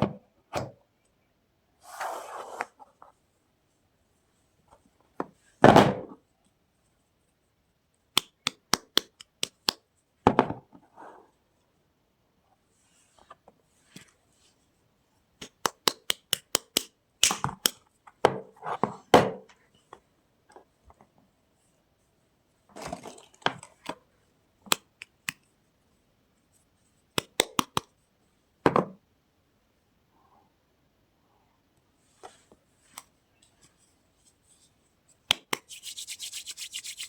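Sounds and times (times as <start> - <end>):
packaging clicks and taps: 8.2 - 9.8.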